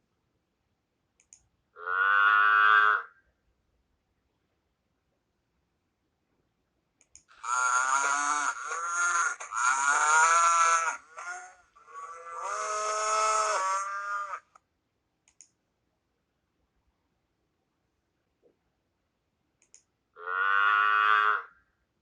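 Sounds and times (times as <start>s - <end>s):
cattle mooing: 7.4s - 14.4s.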